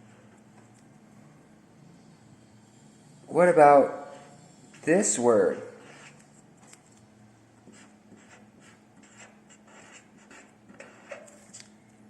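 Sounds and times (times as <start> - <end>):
pen scratching on paper: 3.3 - 6.4, 7.6 - 11.5.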